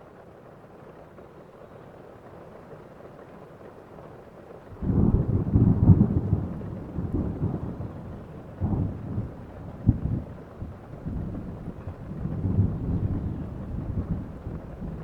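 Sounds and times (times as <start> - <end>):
steady rain: 0.0 - 15.0
rolling thunder: 4.8 - 15.0
sharp thunder clap: 4.8 - 15.0.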